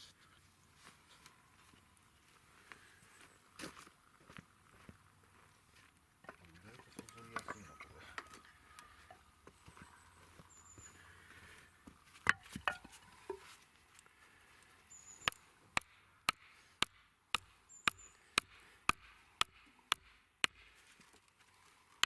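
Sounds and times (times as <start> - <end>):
hammer striking wood: 15.8 - 20.7.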